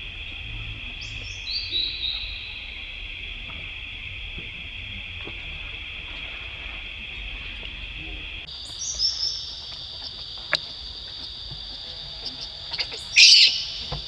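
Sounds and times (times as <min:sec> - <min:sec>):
high-pitched insect drone: 0:00.0 - 0:14.0
loud shrill call: 0:12.2 - 0:13.9
high chirps: 0:12.2 - 0:14.0.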